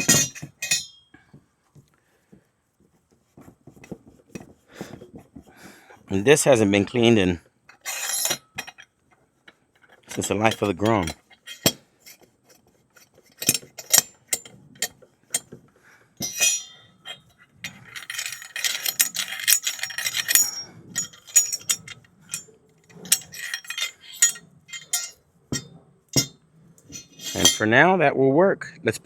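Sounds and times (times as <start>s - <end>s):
metallic clinks and clicks: 0.0s - 1.0s, 13.3s - 15.5s, 16.2s - 27.6s.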